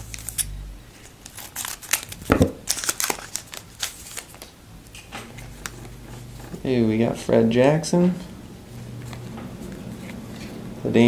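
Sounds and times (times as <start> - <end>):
wrapper crinkling and tearing: 1.0 - 4.5.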